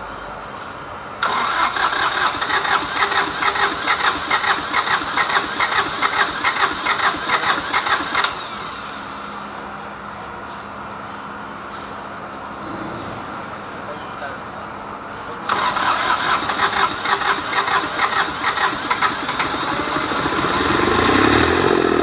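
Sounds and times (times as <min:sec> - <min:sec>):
diesel engine cranking on starter: 0:01.2 - 0:09.5, 0:15.4 - 0:22.0.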